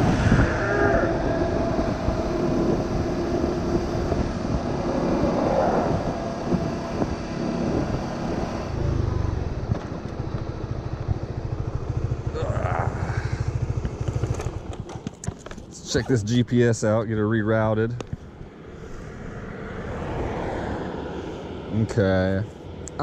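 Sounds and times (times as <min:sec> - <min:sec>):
motorcycle engine running: 0:00.0 - 0:16.3
traffic noise: 0:00.0 - 0:23.0
wind: 0:00.0 - 0:23.0.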